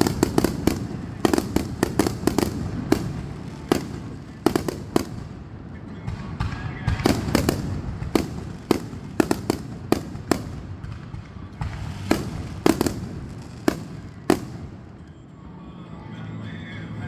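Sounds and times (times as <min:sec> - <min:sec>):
fireworks bangs: 0:00.0 - 0:15.3.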